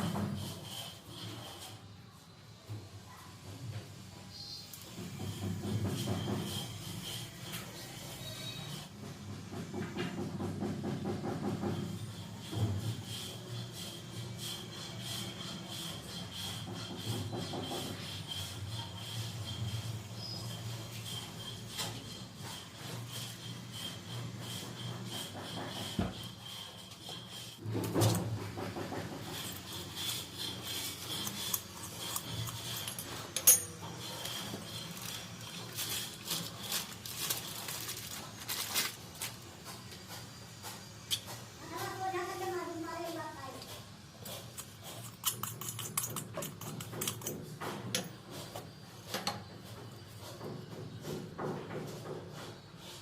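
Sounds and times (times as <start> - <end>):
tools clicking and tapping: 20.4 - 42.0, 43.6 - 52.6
small metal parts clicking: 29.4 - 39.4, 44.3 - 47.3.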